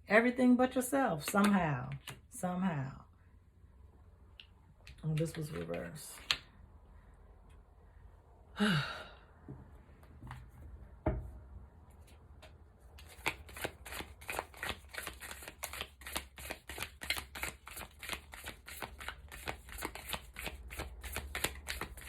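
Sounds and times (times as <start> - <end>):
cards being shuffled: 4.9 - 6.4, 12.9 - 22.0.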